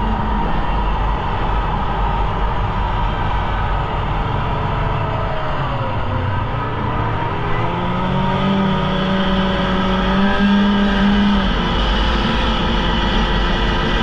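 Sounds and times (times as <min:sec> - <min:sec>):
snowmobile engine running: 0:00.0 - 0:14.0
strong low hum: 0:00.0 - 0:14.0.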